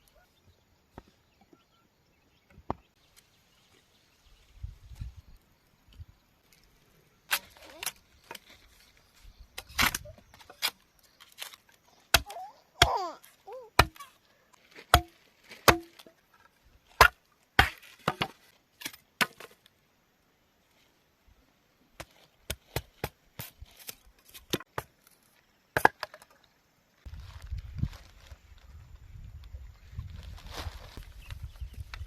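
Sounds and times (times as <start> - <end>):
blade chopping bamboo: 11.4 - 13.2, 13.8 - 14.1, 14.8 - 16.2, 17.0 - 18.4.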